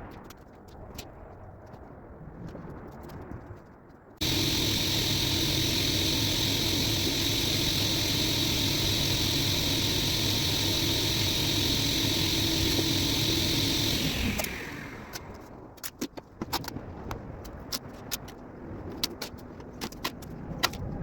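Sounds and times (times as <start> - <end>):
power tool motor running: 4.2 - 15.5.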